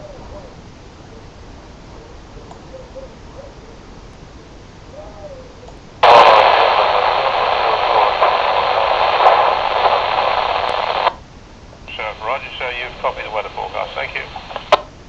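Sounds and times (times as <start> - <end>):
radio static hiss: 6.0 - 11.2, 11.8 - 15.0.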